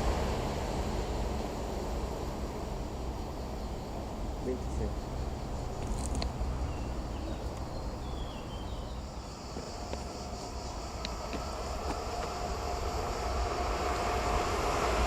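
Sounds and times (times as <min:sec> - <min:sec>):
approaching train whine: 0:00.0 - 0:15.0
insects buzzing: 0:00.0 - 0:15.0
faint bird chirps: 0:06.6 - 0:10.8.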